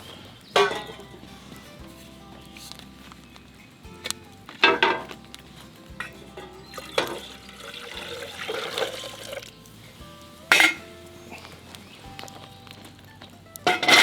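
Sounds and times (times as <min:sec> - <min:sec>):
background music: 0:00.0 - 0:14.0
cookware clinking: 0:00.0 - 0:14.0
liquid pouring: 0:06.8 - 0:09.5.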